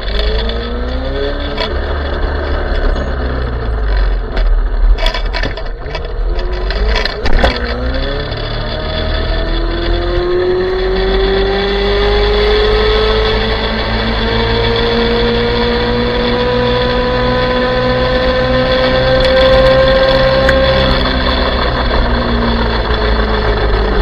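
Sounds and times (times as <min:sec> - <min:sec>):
sharp knocks and clatters: 0:00.0 - 0:08.4
electric motor whining: 0:00.0 - 0:24.0.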